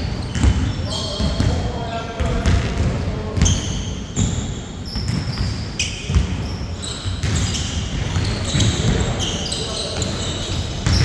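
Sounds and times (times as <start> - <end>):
basketball bouncing on court: 0.0 - 11.0
sneakers squeaking on floor: 0.0 - 11.0.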